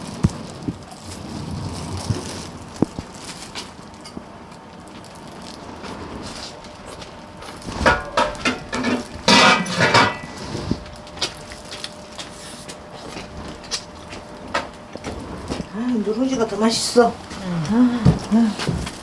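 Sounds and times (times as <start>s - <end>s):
spoons and chopsticks clinking bowls: 8.0s - 10.4s.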